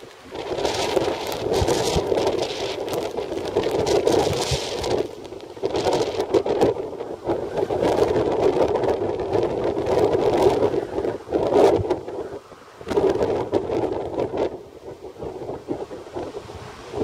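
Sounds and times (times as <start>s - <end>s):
heavy rain: 0.0s - 17.0s
strong gusting wind: 0.0s - 17.0s.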